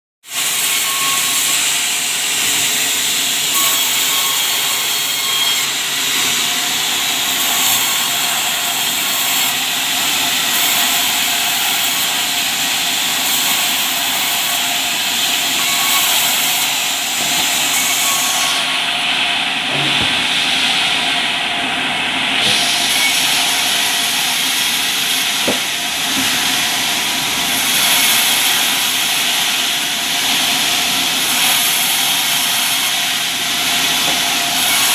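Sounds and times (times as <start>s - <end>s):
sawmill saw whining: 0.2s - 34.9s.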